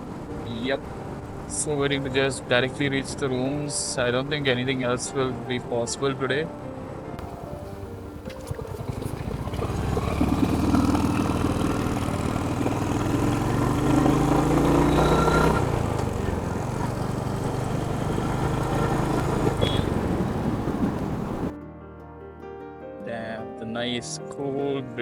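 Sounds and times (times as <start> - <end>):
motorcycle engine running: 7.2 - 21.5.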